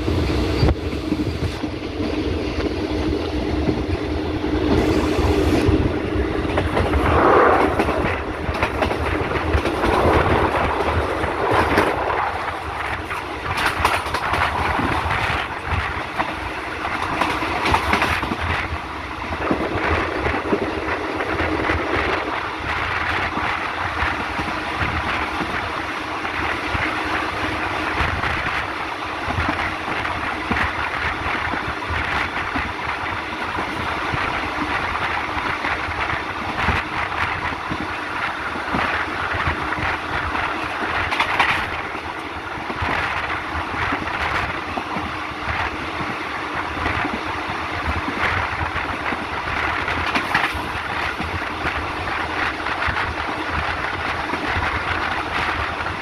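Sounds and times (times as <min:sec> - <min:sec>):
train running noise: 0:00.0 - 0:56.0
wheels clattering over rail joints: 0:07.8 - 0:25.7, 0:29.3 - 0:45.7, 0:46.7 - 0:56.0.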